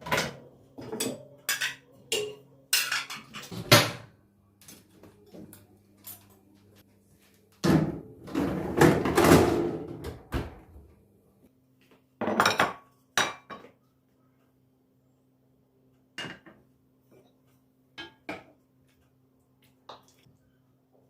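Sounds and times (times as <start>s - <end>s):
dishes and utensils clattering: 0.0s - 4.1s, 16.2s - 17.4s.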